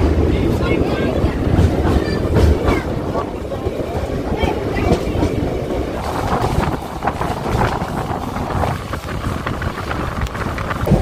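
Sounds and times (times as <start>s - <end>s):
train rumbling along track: 0.0s - 11.0s
wheels clicking over rails: 0.0s - 11.0s
wind on microphone: 0.0s - 11.0s.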